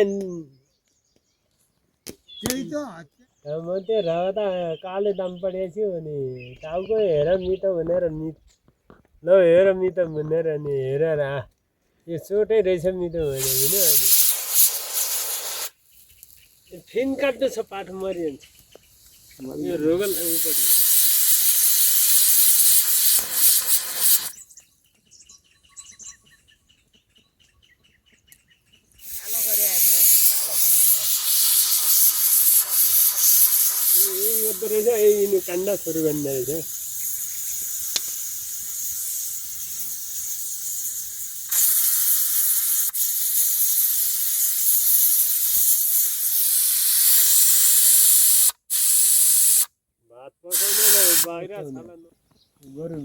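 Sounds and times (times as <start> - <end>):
faint rapid chirping: 13.1 - 42.8
loud steady hiss: 13.2 - 24.4, 29.0 - 49.7, 50.5 - 51.5.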